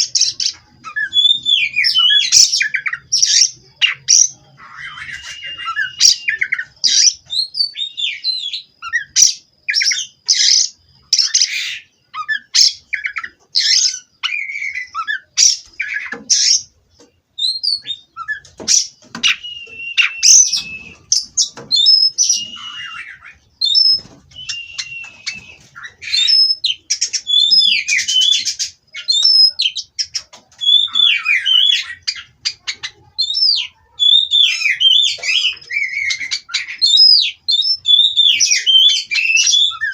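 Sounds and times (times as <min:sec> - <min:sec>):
bird singing whistled phrases: 0:00.1 - 0:16.6, 0:17.4 - 0:39.9.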